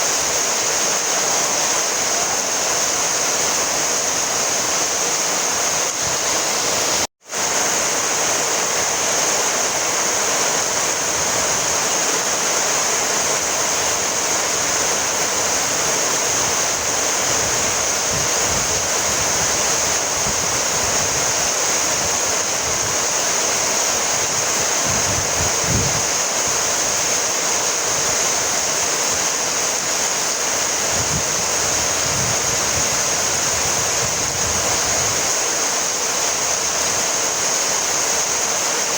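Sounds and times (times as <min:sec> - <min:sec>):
heavy rainfall: 0:00.0 - 0:38.9.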